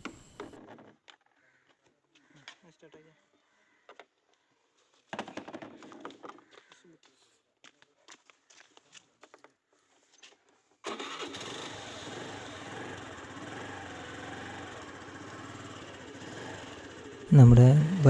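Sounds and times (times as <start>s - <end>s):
motorbike engine starting and idling: 10.8s - 18.0s.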